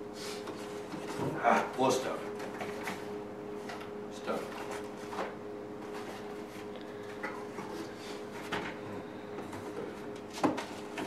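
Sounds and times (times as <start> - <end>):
steady low hum: 0.0 - 11.0
cardboard rustling: 2.4 - 8.8.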